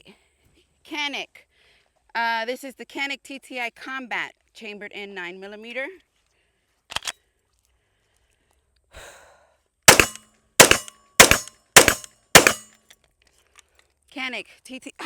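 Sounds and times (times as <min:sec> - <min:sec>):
metallic double click: 0:09.9 - 0:12.6
pistol shots: 0:09.9 - 0:12.7.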